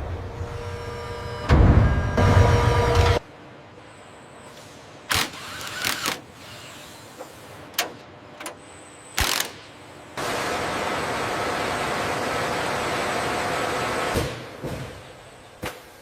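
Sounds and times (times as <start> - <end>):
mechanical clicks and clunks: 5.1 - 9.8.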